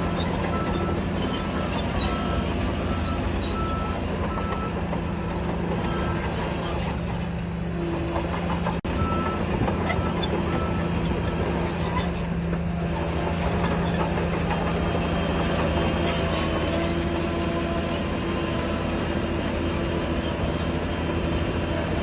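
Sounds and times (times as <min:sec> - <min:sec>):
reversing alarm beeps: 0:00.0 - 0:06.4, 0:08.9 - 0:11.5
diesel earthmoving machinery running: 0:00.0 - 0:22.0.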